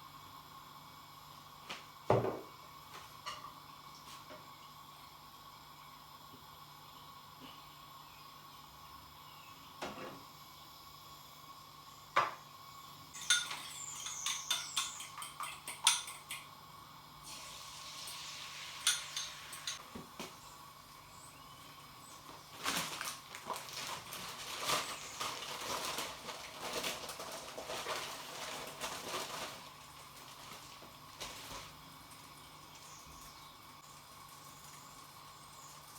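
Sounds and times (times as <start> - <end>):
faint steady hum: 0.0 - 35.9
cutlery clinking against dishes: 13.2 - 16.5, 18.8 - 19.8.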